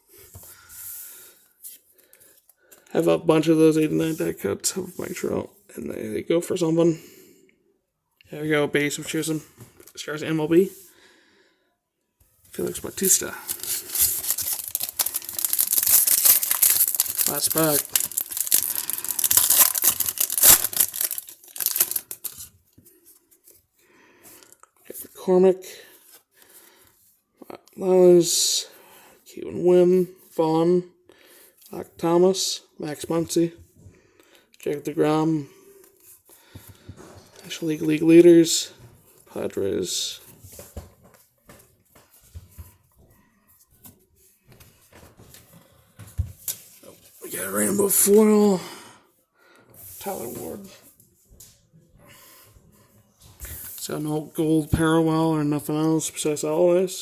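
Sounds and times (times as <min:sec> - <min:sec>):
cards clicking and rustling: 0:13.0 - 0:22.5
foil wrapper tearing and crinkling: 0:13.0 - 0:22.5.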